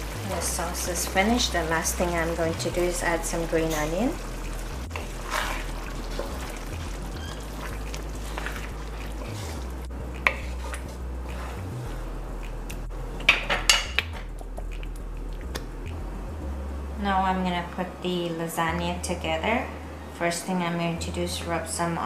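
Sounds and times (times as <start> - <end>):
wooden spoon stirring thick sauce: 1.0 - 11.6.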